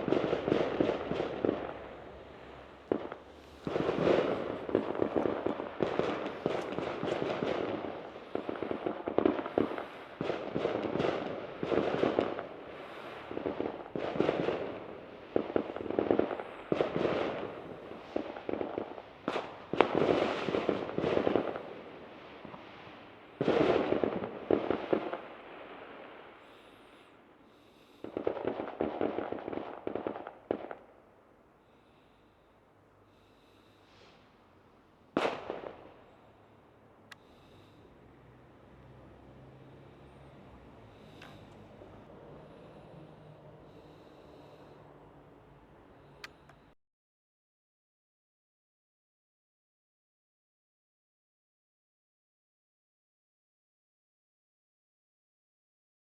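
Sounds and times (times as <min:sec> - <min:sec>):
fireworks crackling bangs: 0:00.0 - 0:31.0, 0:35.1 - 0:36.6.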